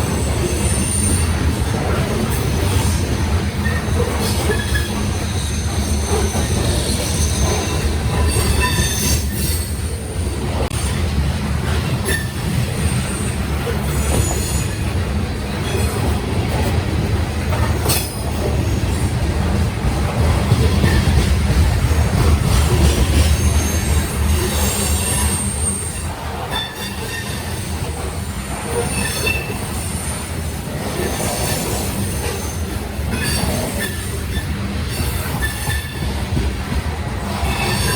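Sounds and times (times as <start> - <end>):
train wheels rumbling on rail: 0.0 - 37.9
sharp clicks from rail joints: 17.4 - 18.6.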